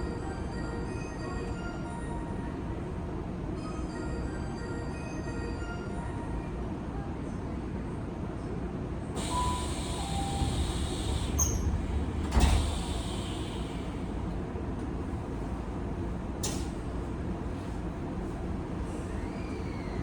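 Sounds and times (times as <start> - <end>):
hiss: 9.2 - 14.1
train wheels rumbling on rail: 9.2 - 20.0.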